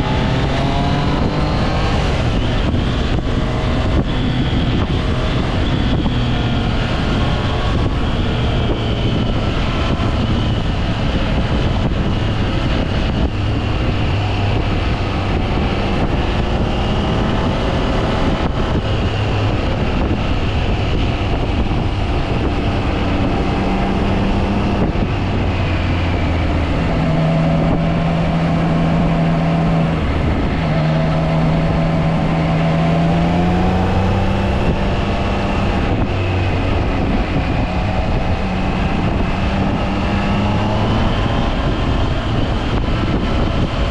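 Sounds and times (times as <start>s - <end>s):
wind rush: 0.0s - 43.9s
motorcycle engine running: 27.6s - 40.3s.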